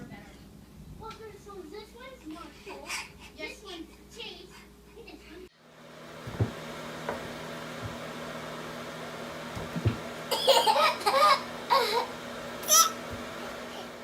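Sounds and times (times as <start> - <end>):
steady low hum: 0.0 - 14.0
baby laughing: 10.3 - 13.0
baby squealing: 12.6 - 13.0.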